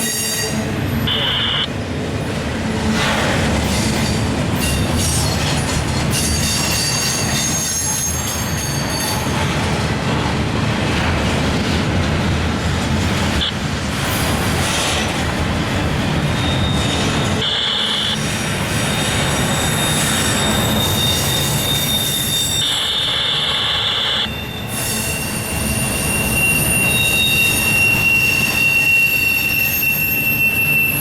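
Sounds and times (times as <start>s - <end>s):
high wheel squeal: 0.0s - 1.6s, 3.7s - 9.6s, 16.2s - 31.0s
freight train wheels rumbling: 0.0s - 31.0s.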